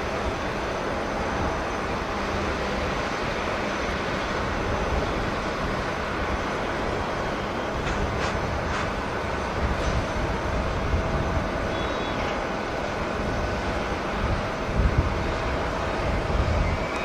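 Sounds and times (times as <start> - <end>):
jet engines rumbling: 0.0 - 17.0
faint high whine: 11.6 - 17.0.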